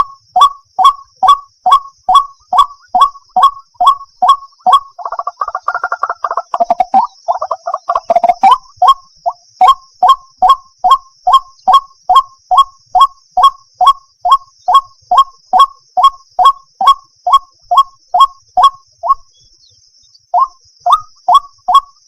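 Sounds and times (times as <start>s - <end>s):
waterhen harsh calls: 2.5s - 8.6s.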